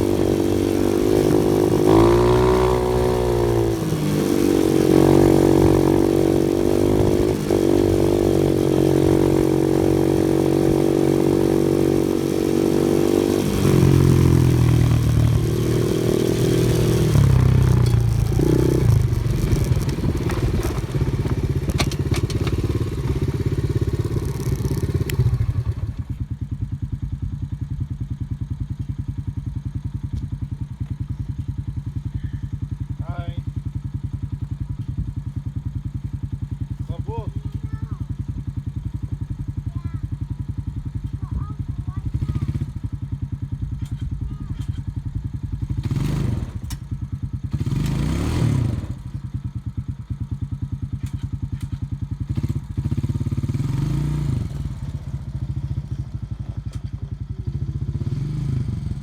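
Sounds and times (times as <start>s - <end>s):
off-road vehicle engine: 0.0s - 59.0s
rattling: 10.3s - 24.8s.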